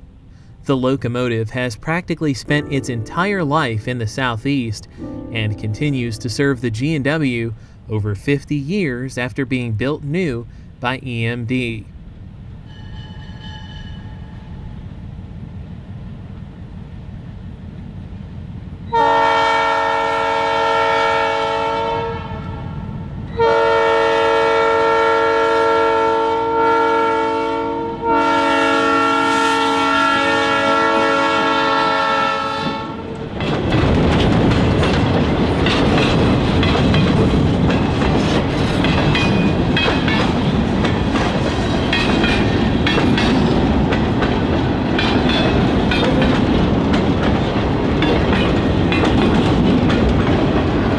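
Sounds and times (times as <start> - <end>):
train rumbling past: 0.0 - 50.9
locomotive air horn blasts: 18.9 - 22.7, 23.3 - 33.1
wheels clicking over rails: 33.2 - 50.9.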